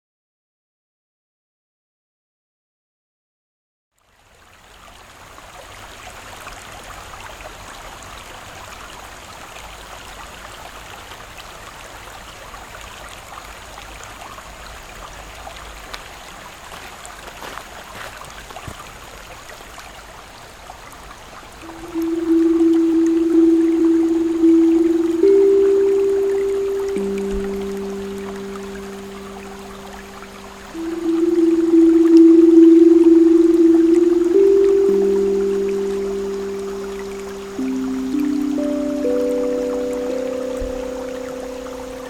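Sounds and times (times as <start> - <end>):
creek water trickling: 4.0 - 42.0
steel tongue drum note: 21.6 - 42.0.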